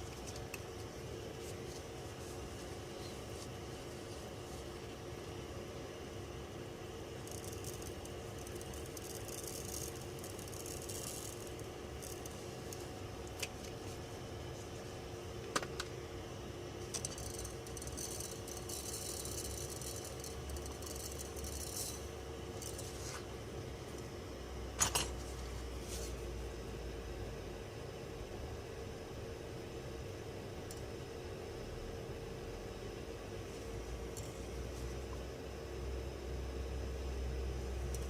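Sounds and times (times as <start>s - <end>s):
faint steady hum: 0.0s - 38.0s
objects clicking on a workbench: 24.8s - 25.2s.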